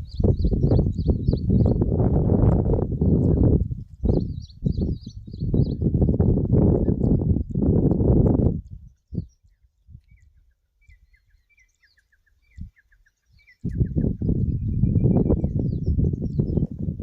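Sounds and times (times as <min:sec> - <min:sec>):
bird chirping: 0:00.0 - 0:01.9, 0:02.9 - 0:07.6, 0:08.6 - 0:16.8.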